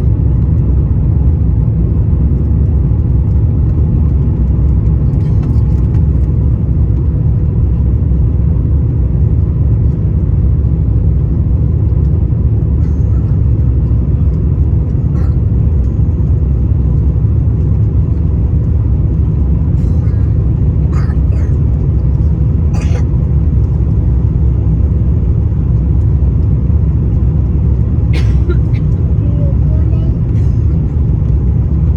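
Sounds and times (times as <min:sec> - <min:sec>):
jet engines rumbling in cabin: 0:00.0 - 0:31.9
airflow around fuselage: 0:12.7 - 0:26.5.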